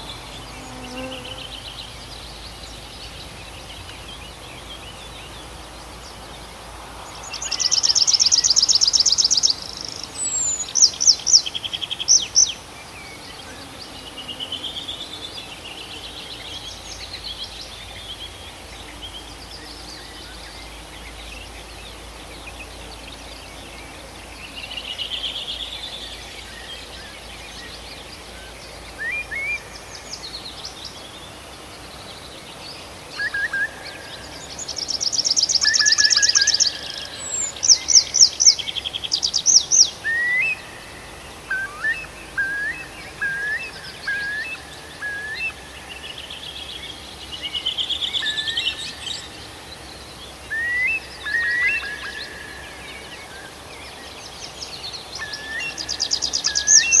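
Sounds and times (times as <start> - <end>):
faint background hiss: 0.0 - 57.0
songbirds singing: 0.0 - 57.0.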